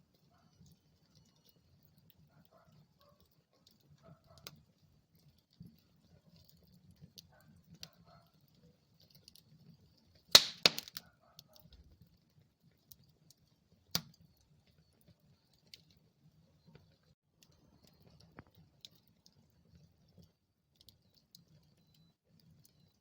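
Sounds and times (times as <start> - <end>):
wood fire crackling: 0.0 - 23.0
loud sharp fire pops: 10.3 - 11.0.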